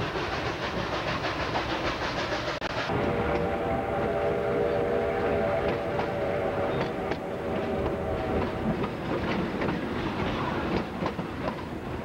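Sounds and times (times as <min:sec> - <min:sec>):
train whistle: 0:02.9 - 0:08.8.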